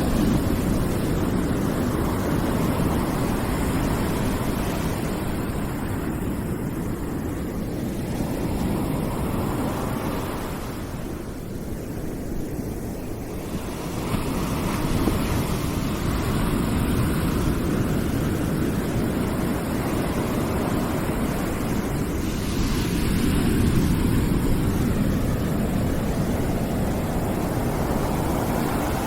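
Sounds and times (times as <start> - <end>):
white noise rushing: 18.6 - 29.0.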